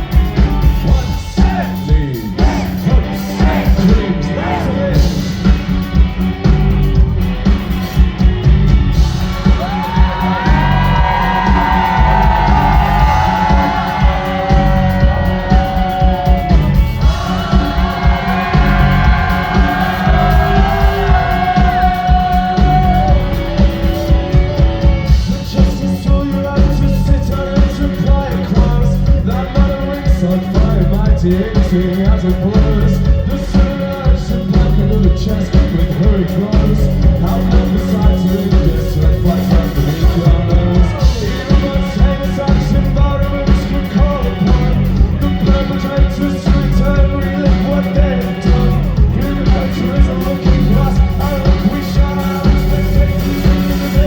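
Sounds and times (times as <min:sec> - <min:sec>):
bass guitar: 0:00.0 - 0:54.0
driving drums: 0:00.0 - 0:54.0
live rock band playing loudly: 0:00.0 - 0:54.0
long held melodic line: 0:04.1 - 0:31.1.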